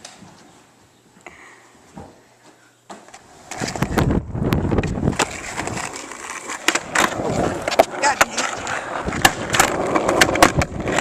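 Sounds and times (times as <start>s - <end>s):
skateboard wheels rumbling on pavement: 3.1s - 11.0s
skateboard clacking: 3.5s - 11.0s.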